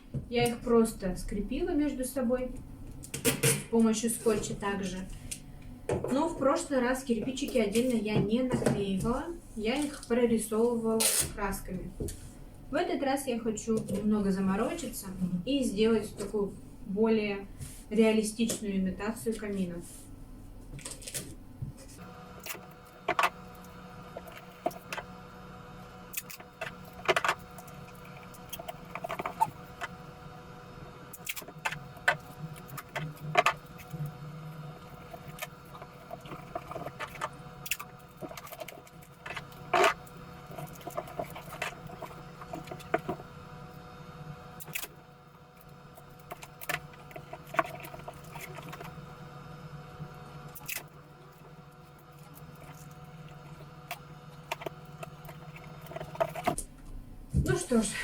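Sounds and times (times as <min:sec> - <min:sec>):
steady low hum: 0:00.0 - 0:58.0
cardboard and tape crackling: 0:22.0 - 0:56.8.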